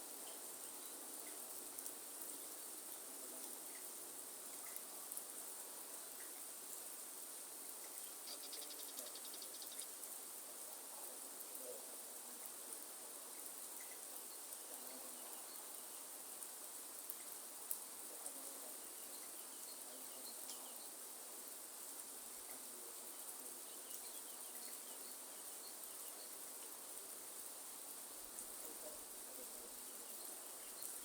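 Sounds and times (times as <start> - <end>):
light rain hiss: 0.0 - 31.0
small bird chirps: 7.9 - 10.0.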